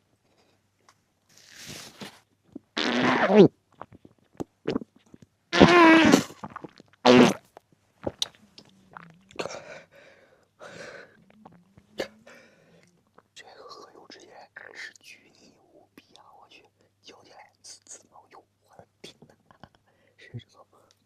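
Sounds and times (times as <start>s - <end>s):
mouth clicks: 2.6s - 9.8s, 10.7s - 13.4s
person vocal noises while eating: 8.0s - 9.9s, 10.6s - 13.4s.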